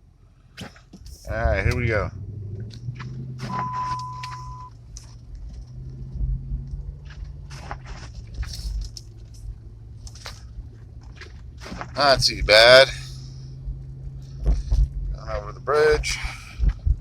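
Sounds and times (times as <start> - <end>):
car engine humming: 0.0 - 17.0
electronic beep: 3.5 - 4.7.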